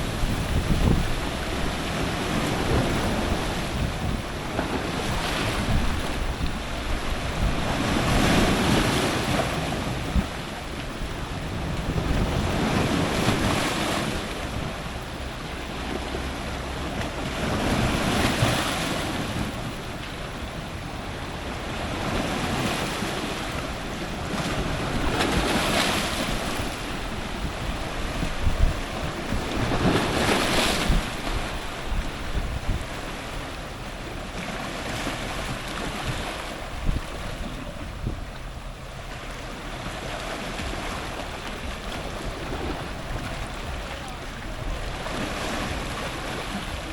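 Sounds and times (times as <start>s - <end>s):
ocean surf breaking on rocks: 0.0s - 46.9s.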